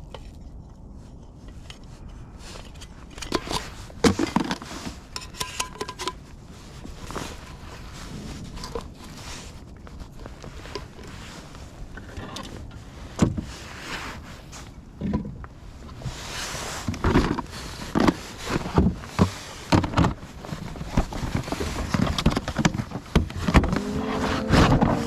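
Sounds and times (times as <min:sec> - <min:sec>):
low rumble: 0:07.8 - 0:10.4, 0:23.6 - 0:25.0
knocks and rattles on kayak: 0:15.0 - 0:15.4, 0:16.9 - 0:25.0.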